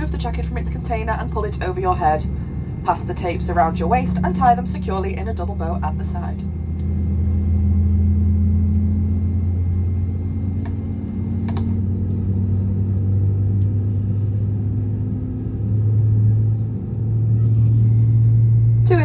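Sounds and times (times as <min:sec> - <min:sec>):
aircraft cabin drone: 0:00.0 - 0:19.0.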